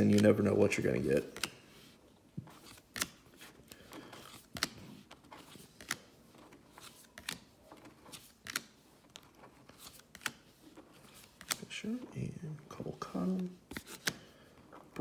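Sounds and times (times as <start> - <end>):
trading cards snapping: 0.0 - 1.6, 2.5 - 6.1, 6.7 - 11.7, 13.7 - 14.3
card stock rustling: 0.0 - 12.3, 12.9 - 15.0.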